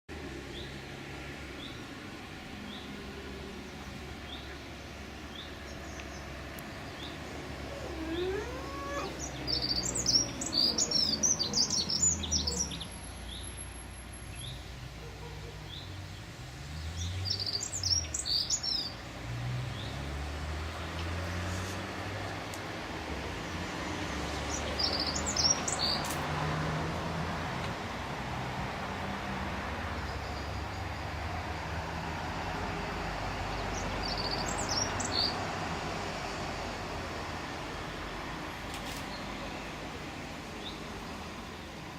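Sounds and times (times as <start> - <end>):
songbird twittering: 7.8 - 13.6, 17.0 - 19.0, 24.5 - 26.1, 33.5 - 35.4
small bird chirping: 7.8 - 13.7, 24.5 - 26.2, 33.6 - 35.4.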